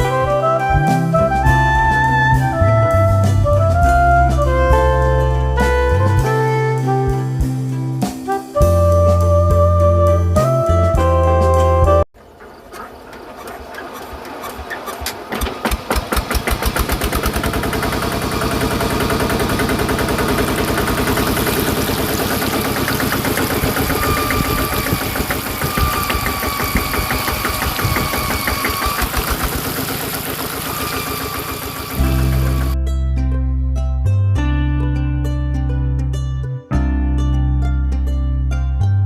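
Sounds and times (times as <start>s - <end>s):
small diesel engine starting and running: 12.2s - 32.8s.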